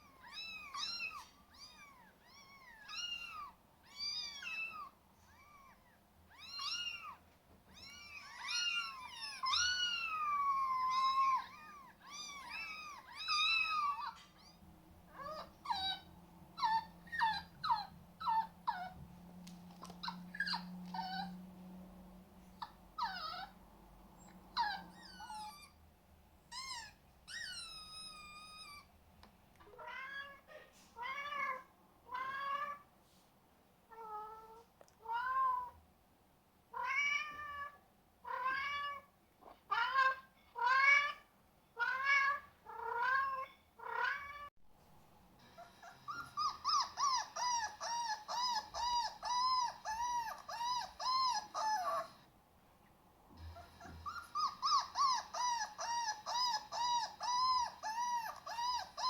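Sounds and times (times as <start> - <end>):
cat meowing: 0.0 - 19.0, 24.6 - 25.8, 29.7 - 32.8, 33.9 - 35.8, 36.7 - 39.1, 39.7 - 44.5.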